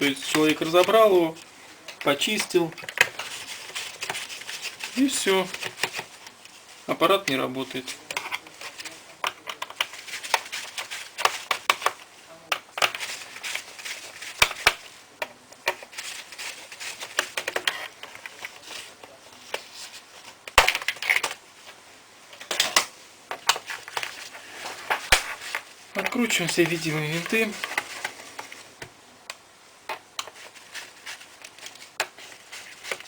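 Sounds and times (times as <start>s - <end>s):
plastic laptop parts clicking: 9.2s - 13.1s.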